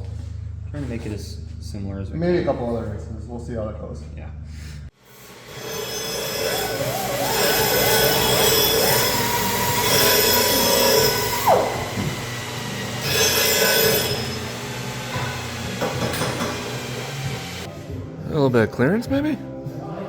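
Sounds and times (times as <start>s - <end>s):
power tool grinding metal: 5.0s - 17.7s.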